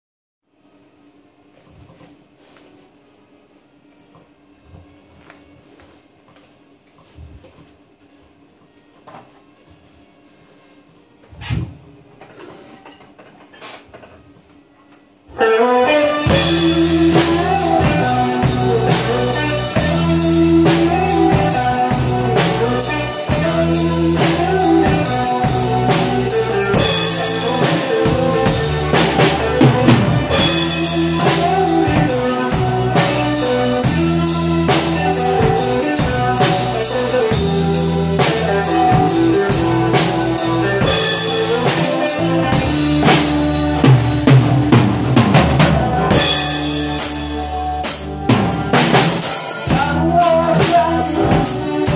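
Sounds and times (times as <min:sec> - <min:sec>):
guitar and bass backing track: 0:15.3 - 0:51.9
drum kit playing: 0:15.4 - 0:51.9.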